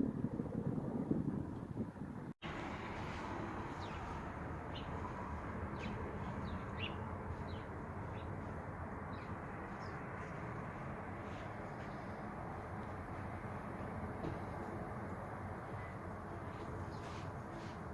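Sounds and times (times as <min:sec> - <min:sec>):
small birds chirping: 0:03.7 - 0:08.5, 0:09.1 - 0:10.6.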